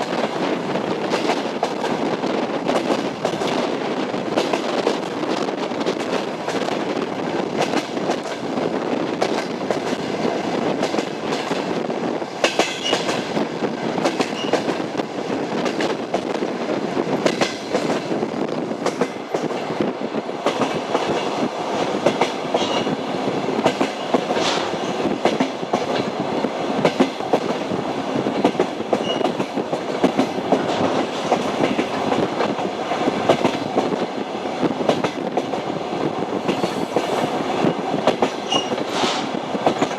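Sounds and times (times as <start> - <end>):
train wheels clattering on rails: 0.0 - 39.9
high squeaks: 38.5 - 38.8.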